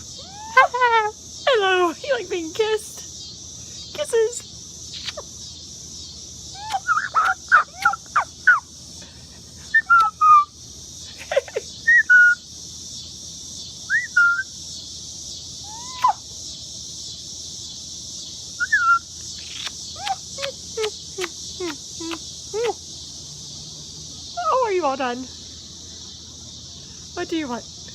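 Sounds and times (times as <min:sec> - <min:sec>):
whistled bird calls and chirps: 0:06.6 - 0:08.6, 0:09.7 - 0:10.5, 0:11.8 - 0:12.4, 0:13.9 - 0:14.6, 0:15.6 - 0:16.2, 0:18.6 - 0:21.0.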